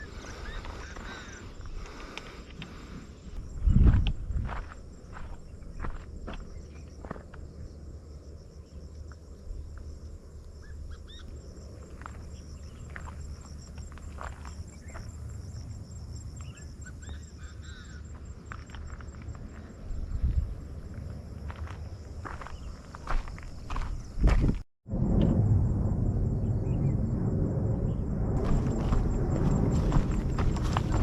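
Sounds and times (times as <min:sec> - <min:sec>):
insects trilling: 0:00.0 - 0:24.6, 0:26.2 - 0:31.0
low rumble: 0:24.3 - 0:31.0.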